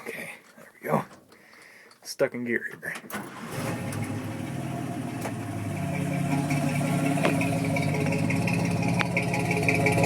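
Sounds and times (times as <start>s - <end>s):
truck engine idling: 3.3s - 10.0s.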